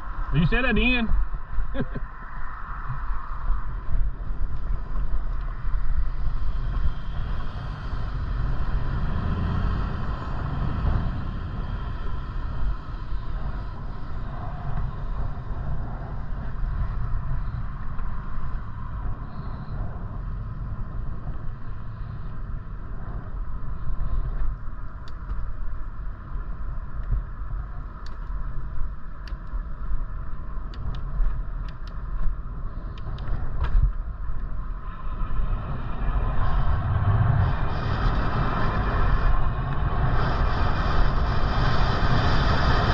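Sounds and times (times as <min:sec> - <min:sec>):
tyre and road noise: 0:00.0 - 0:42.9
wind buffeting microphone: 0:00.0 - 0:42.9
sharp clicks and ticks: 0:24.2 - 0:25.6, 0:26.9 - 0:27.2, 0:27.9 - 0:29.6, 0:30.6 - 0:34.6.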